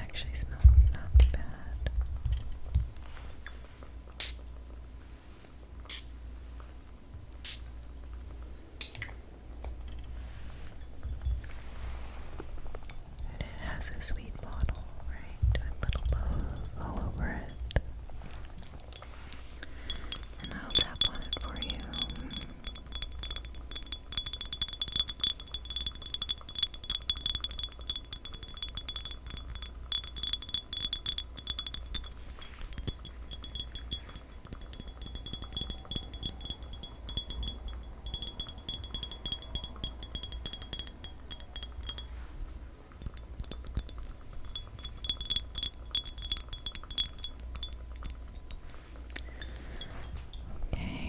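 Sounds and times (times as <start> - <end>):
light tapping on glass: 19.6 - 42.4, 43.0 - 50.9
high ringing tone: 19.8 - 42.4, 44.3 - 51.0.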